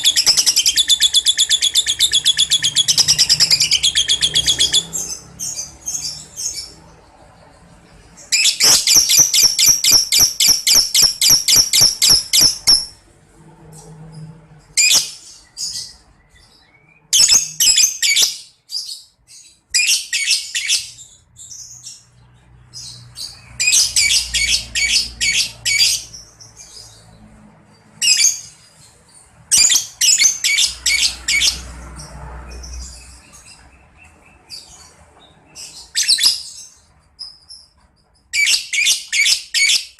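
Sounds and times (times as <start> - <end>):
lovebird rapid high chirps: 0.0 - 6.8, 8.2 - 13.0, 17.1 - 19.0, 22.8 - 26.9, 29.5 - 31.6.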